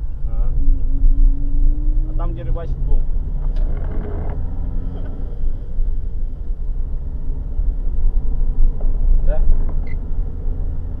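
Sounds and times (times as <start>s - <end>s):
car driving rumble: 0.0s - 11.0s.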